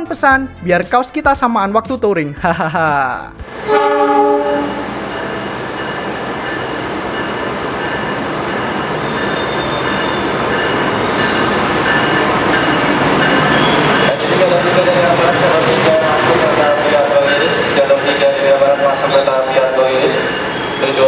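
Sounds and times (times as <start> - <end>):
train wheel-on-rail noise: 3.4 - 21.0
train horn: 3.6 - 5.1.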